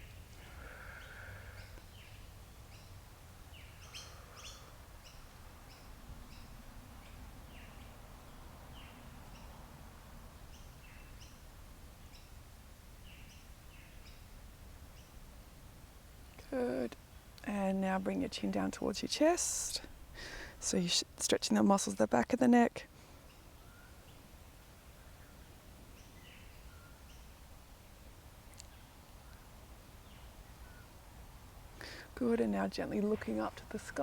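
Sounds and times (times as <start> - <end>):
birds chirping: 0.0 - 9.8, 16.2 - 34.0
low outdoor rumble: 0.0 - 34.0.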